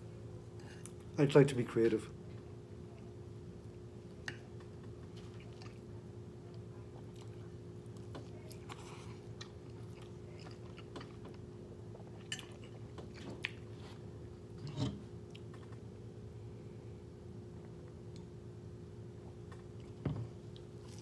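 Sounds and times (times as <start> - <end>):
chewing food: 4.0 - 15.9, 19.3 - 21.0.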